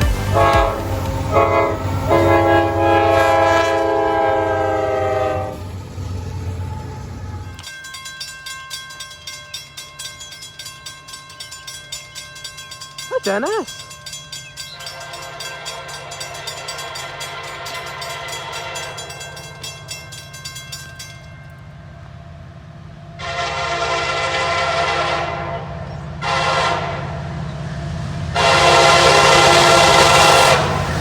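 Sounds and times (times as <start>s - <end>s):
locomotive air horn blasts: 0.0s - 5.6s, 23.2s - 27.2s, 28.4s - 31.0s.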